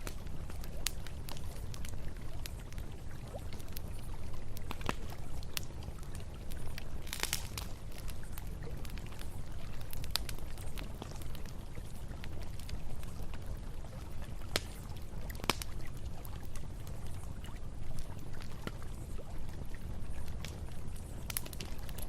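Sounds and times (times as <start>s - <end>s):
campfire crackling: 0.0s - 22.0s
sharp fire pops: 7.1s - 7.7s.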